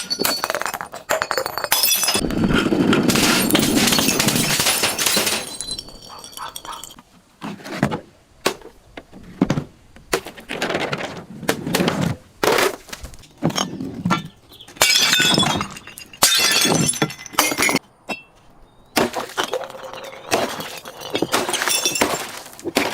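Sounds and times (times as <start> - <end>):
glass shards tinkling: 0.0 - 2.2, 3.2 - 7.0, 14.8 - 17.8, 19.6 - 22.4
glass bottles crushing: 0.0 - 7.0, 13.3 - 18.3, 19.1 - 22.9.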